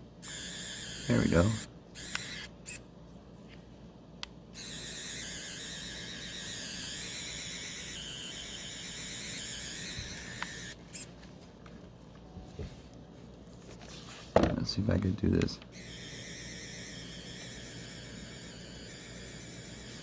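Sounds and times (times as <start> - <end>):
small motor whining: 0.2 - 2.8, 4.6 - 11.1, 15.8 - 20.0.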